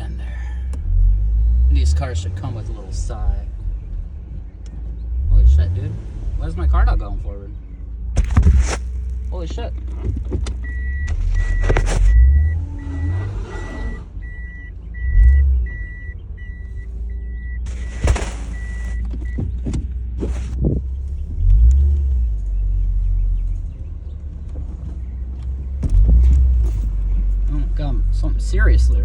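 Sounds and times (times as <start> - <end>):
car engine rumbling: 0.0 - 29.0
electronic warning chime beeping: 10.6 - 18.0.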